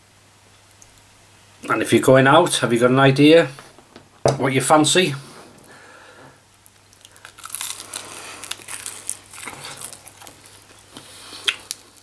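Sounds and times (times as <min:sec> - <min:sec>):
person chewing chicken: 0:06.9 - 0:12.0.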